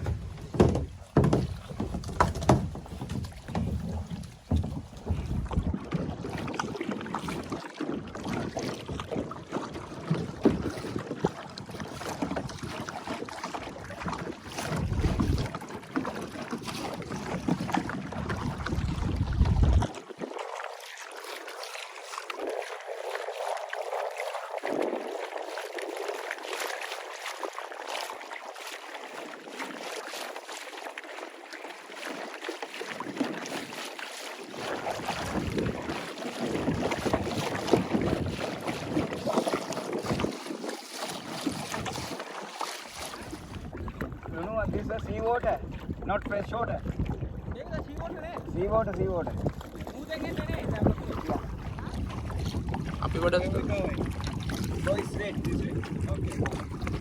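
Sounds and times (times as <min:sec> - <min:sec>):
paddle splashes: 0:00.0 - 0:57.0
wind buffeting microphone: 0:03.8 - 0:05.9, 0:13.9 - 0:15.6, 0:17.2 - 0:20.0, 0:35.0 - 0:40.5, 0:43.2 - 0:57.0.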